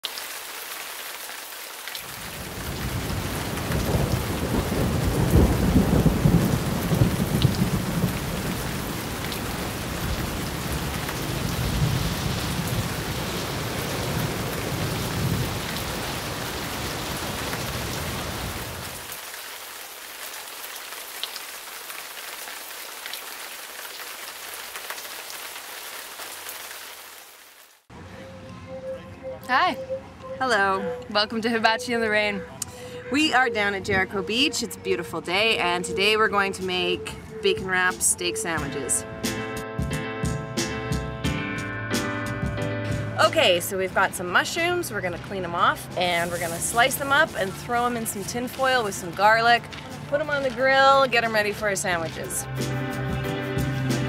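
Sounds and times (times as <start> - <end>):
steady rain falling: 0.0 - 27.9, 43.2 - 53.0
rolling thunder rumble: 2.2 - 19.0.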